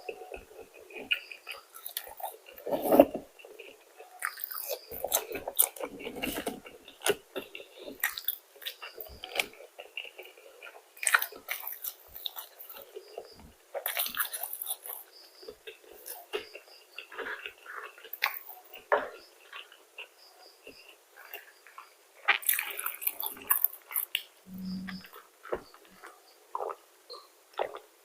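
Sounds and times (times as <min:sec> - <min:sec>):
person chewing crunchy food: 0:00.0 - 0:28.0
mouth sounds: 0:24.5 - 0:25.2.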